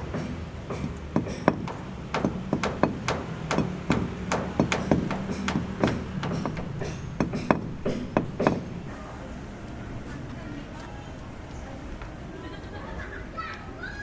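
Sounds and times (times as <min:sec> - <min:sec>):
hammer blows: 0:00.1 - 0:09.1
steady low hum: 0:01.2 - 0:11.9.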